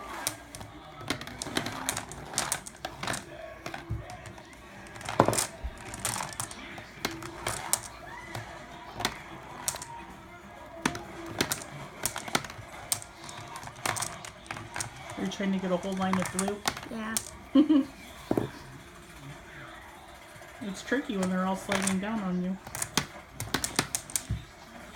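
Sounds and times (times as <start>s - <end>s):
plastic marbles clicking and clacking: 0.0s - 17.6s, 20.6s - 24.6s.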